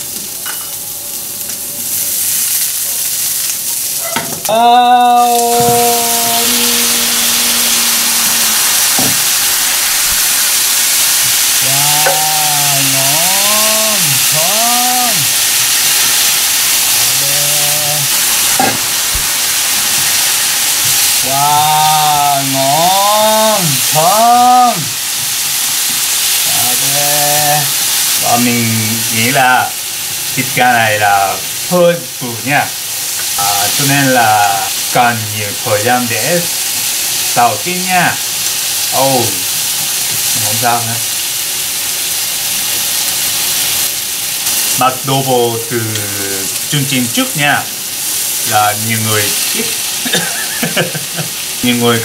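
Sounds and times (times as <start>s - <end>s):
chicken sizzling in a pan: 0.0s - 52.0s
wordless voice: 4.5s - 8.4s, 11.6s - 15.4s, 17.0s - 18.1s, 21.2s - 25.0s, 26.4s - 29.8s, 30.4s - 32.8s, 33.4s - 36.5s, 38.9s - 39.5s, 40.3s - 41.1s, 44.7s - 47.7s, 48.5s - 52.0s.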